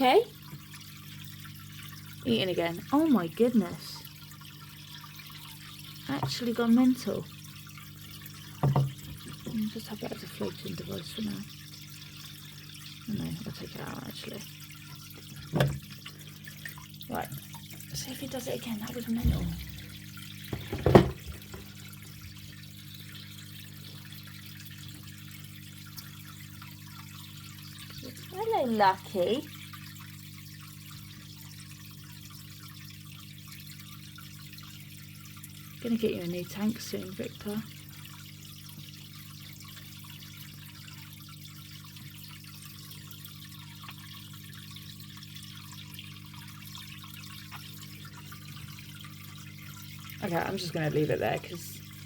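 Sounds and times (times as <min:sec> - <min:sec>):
filter low hum: 0:00.0 - 0:32.4
water trickling and splashing: 0:00.0 - 0:52.0
low motor hum: 0:17.1 - 0:22.3.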